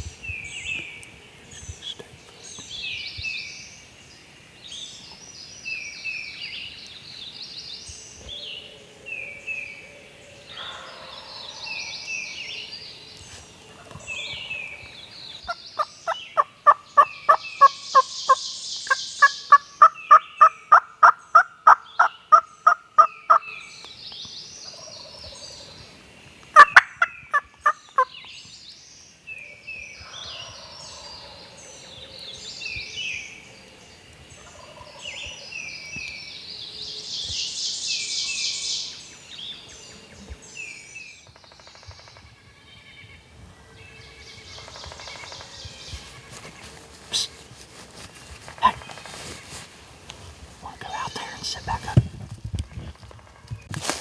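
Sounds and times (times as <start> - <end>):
songbirds singing: 0.0 - 54.0
turkeys gobbling: 26.6 - 28.1.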